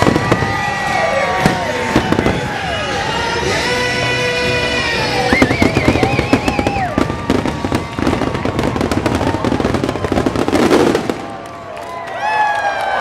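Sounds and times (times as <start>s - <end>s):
fireworks popping and crackling: 0.0s - 3.8s, 4.4s - 12.0s
music: 1.2s - 7.8s.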